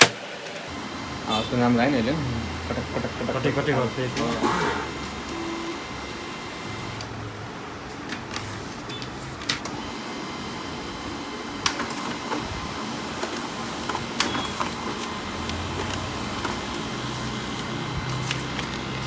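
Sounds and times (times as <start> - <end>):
printer mechanical hum: 0.0 - 19.0
paper-feed clicks: 2.7 - 5.5, 7.9 - 10.2, 11.5 - 19.0.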